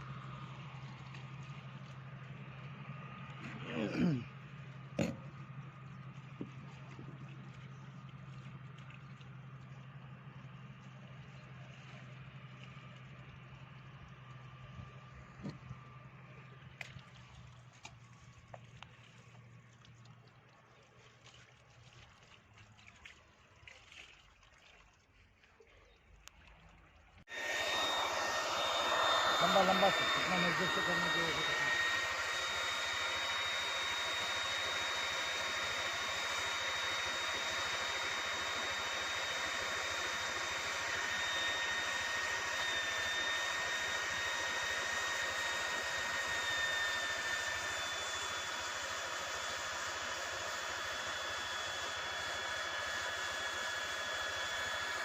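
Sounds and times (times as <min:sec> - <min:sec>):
high blower whine: 0:02.8 - 0:05.4, 0:27.3 - 0:55.0
hot air gun hissing: 0:27.3 - 0:55.0
lower whine: 0:27.3 - 0:55.0.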